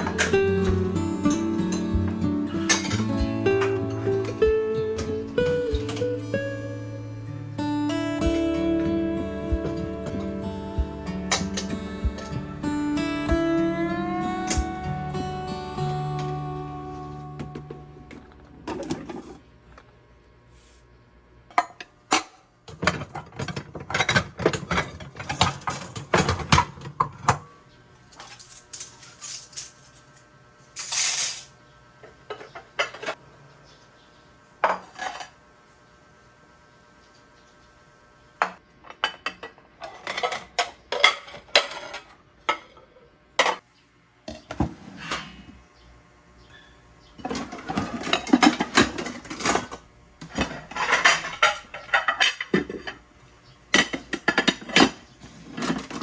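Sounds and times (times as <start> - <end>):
dishes and cutlery clinking: 2.6 - 4.3, 47.2 - 53.0.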